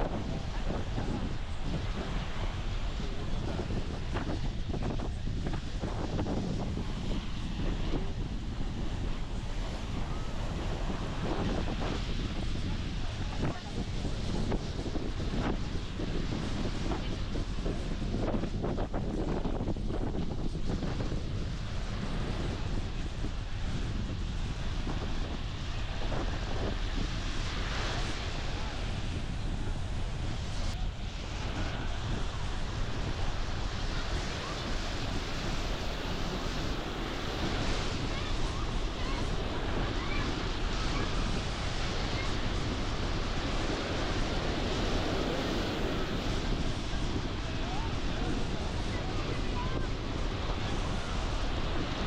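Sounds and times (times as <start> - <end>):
wind buffeting microphone: 0.0 - 52.0
ocean surf: 25.8 - 52.0.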